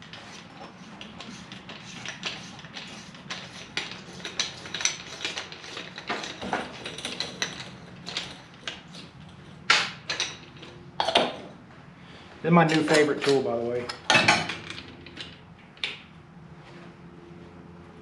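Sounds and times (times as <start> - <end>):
metal tools clinking and tapping: 0.6 - 11.2.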